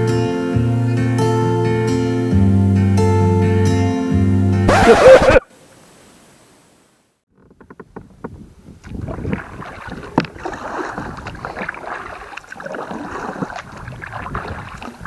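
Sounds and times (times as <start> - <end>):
paddle splashing in water: 8.8 - 15.0.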